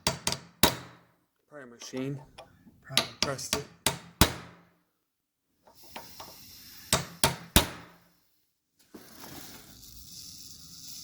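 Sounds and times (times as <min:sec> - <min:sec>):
hammer striking chisel on steel: 0:02.4 - 0:04.6, 0:06.9 - 0:08.0.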